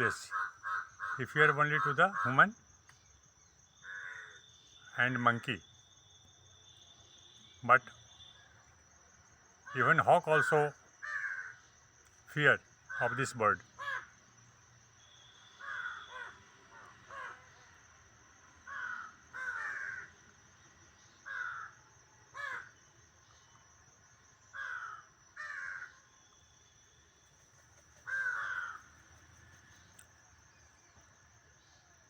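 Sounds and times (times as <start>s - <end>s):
crows cawing: 0.0s - 2.6s, 3.8s - 4.5s, 9.7s - 11.7s, 12.9s - 14.2s, 15.2s - 17.8s, 18.6s - 20.3s, 21.2s - 22.8s, 24.5s - 26.1s, 27.9s - 30.0s.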